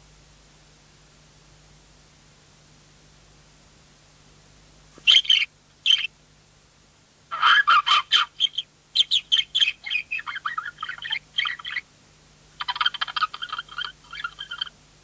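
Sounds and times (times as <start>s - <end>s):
faint steady hum: 0.0s - 15.0s
budgerigar chirping: 5.0s - 6.1s, 7.3s - 11.9s, 12.6s - 14.8s.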